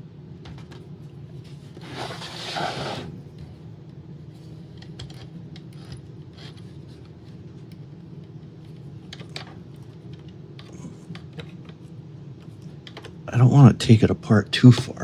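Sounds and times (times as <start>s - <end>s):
steady low hum: 9.7s - 15.0s.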